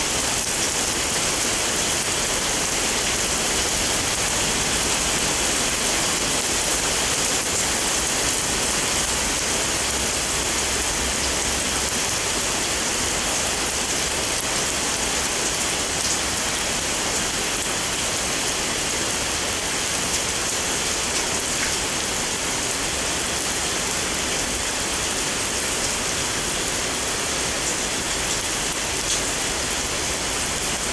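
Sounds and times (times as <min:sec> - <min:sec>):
heavy rain on wooden deck: 0:00.0 - 0:30.9.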